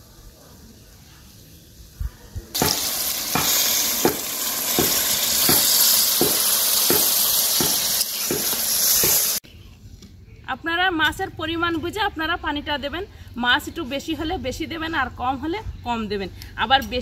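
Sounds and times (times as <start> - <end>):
fish sizzling in oil: 2.6 - 9.4.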